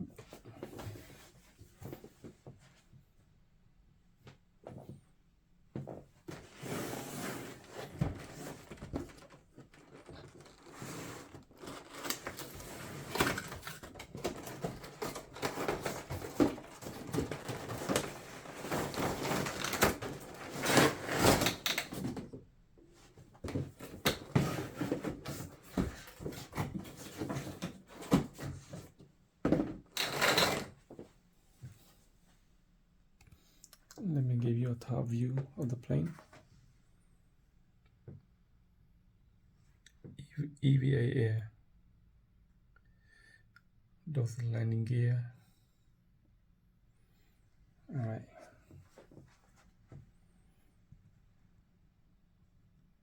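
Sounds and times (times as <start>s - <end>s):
packaging rustling: 7.6s - 22.0s.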